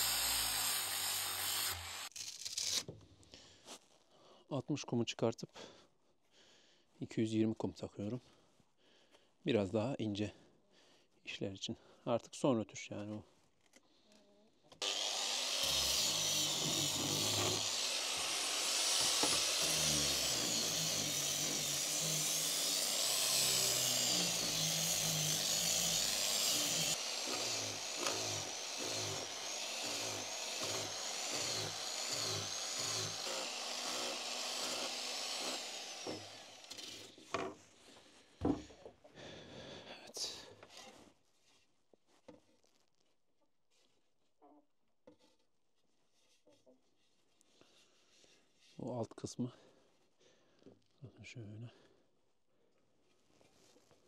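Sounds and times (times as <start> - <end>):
electric sander whining: 14.8 - 36.8.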